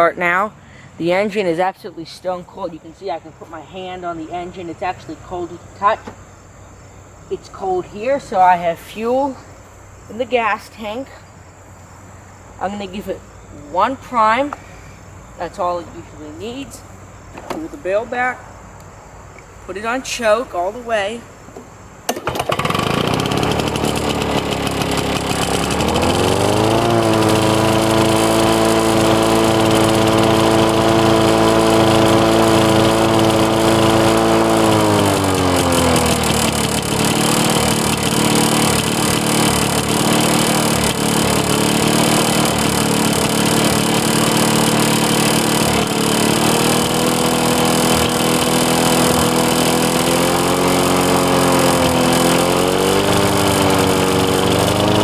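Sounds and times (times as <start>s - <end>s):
two-stroke engine running: 22.1s - 55.0s.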